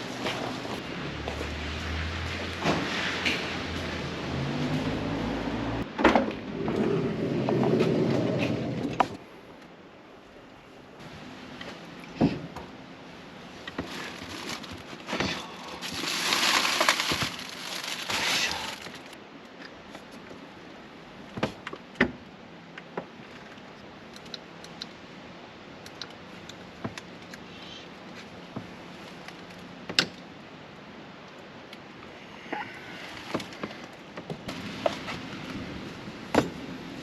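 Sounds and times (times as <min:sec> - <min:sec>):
plastic packaging crinkling: 0:13.8 - 0:19.2.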